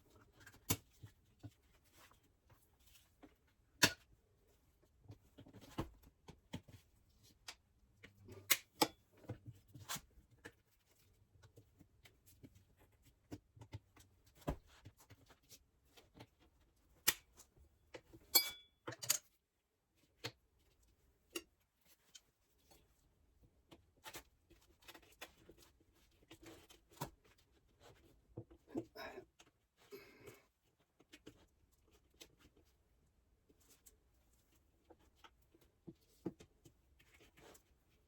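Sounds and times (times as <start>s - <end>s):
metallic clink: 18.4s - 19.2s.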